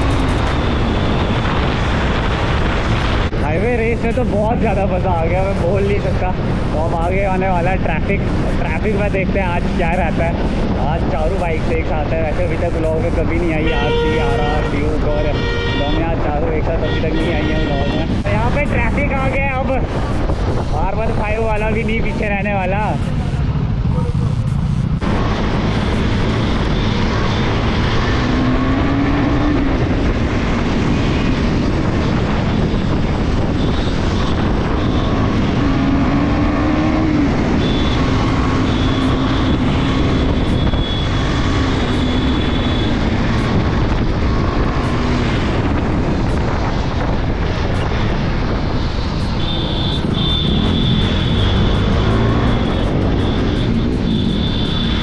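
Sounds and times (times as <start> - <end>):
wind noise on microphone: 0.0 - 55.0
motorcycle engine revving: 22.9 - 55.0.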